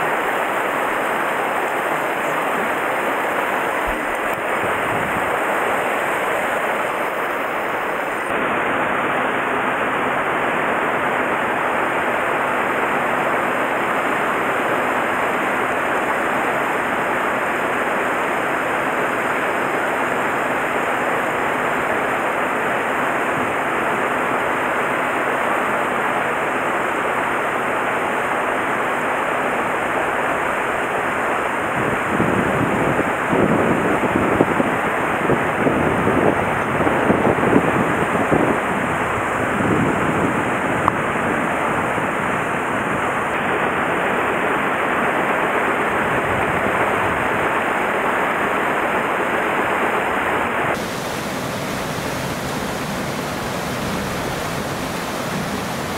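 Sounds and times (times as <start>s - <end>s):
stream rushing over rocks: 0.0s - 55.9s
wind buffeting microphone: 0.5s - 8.3s, 31.6s - 44.7s.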